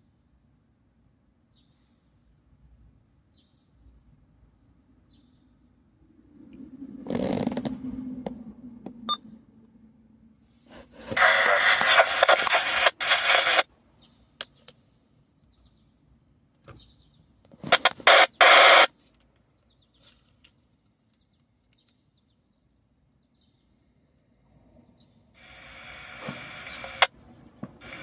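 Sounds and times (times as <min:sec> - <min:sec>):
radio squelch hiss: 0:11.0 - 0:13.7, 0:17.6 - 0:19.0, 0:25.4 - 0:27.1, 0:27.8 - 0:28.0
radio static burst: 0:11.1 - 0:13.7, 0:17.6 - 0:18.9, 0:25.4 - 0:27.1.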